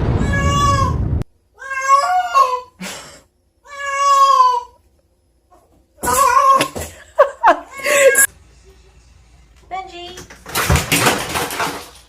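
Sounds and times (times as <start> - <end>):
cat meowing: 0.1 - 1.0, 1.6 - 2.7, 3.6 - 4.8.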